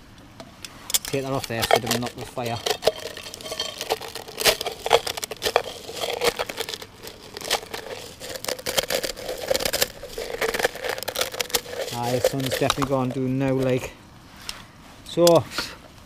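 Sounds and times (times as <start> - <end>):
food frying in metal tin: 1.0 - 13.7
handling of kit and packet: 1.0 - 13.9.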